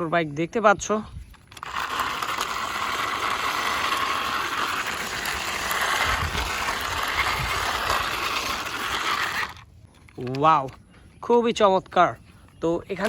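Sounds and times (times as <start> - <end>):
toy motorbike mechanical whir: 1.3 - 10.4.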